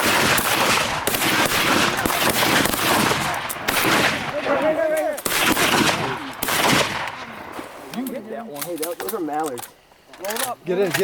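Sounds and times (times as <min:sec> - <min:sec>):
shotguns firing: 0:00.0 - 0:07.8.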